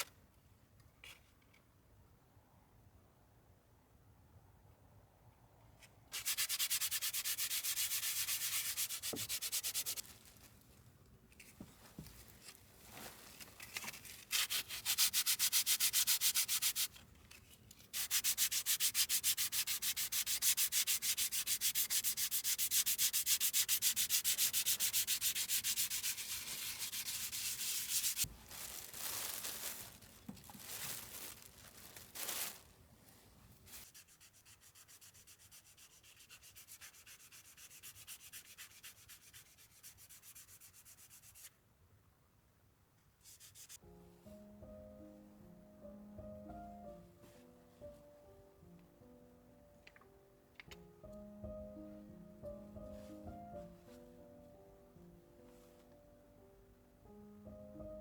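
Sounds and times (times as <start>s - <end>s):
sandpaper rubbing on wood: 6.2s - 10.1s, 14.3s - 16.9s, 18.0s - 28.3s, 33.8s - 41.5s.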